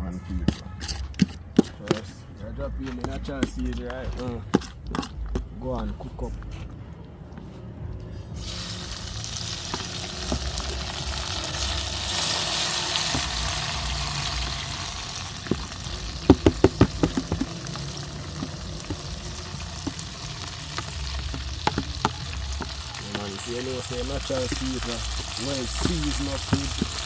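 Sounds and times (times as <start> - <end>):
seasoning sizzling in hot oil: 8.4 - 27.0.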